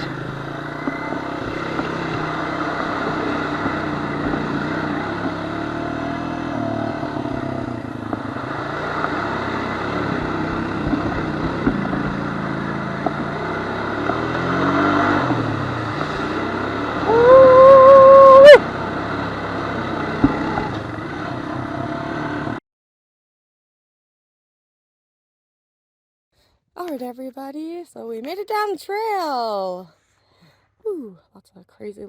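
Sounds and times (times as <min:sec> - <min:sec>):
quad engine revving: 0:00.0 - 0:22.6
loud steady high tone: 0:17.1 - 0:18.6.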